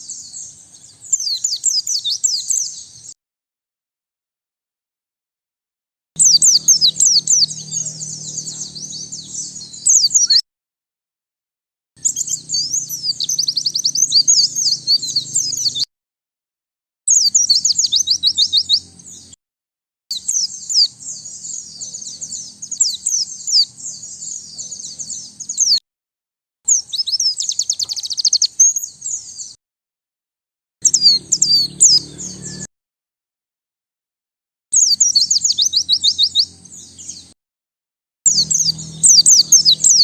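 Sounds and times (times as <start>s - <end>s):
bird twittering: 0.0s - 3.2s, 6.2s - 10.4s, 12.0s - 15.9s, 17.1s - 19.4s, 20.1s - 25.8s, 26.7s - 29.6s, 30.8s - 32.7s, 34.8s - 37.3s, 38.3s - 40.0s.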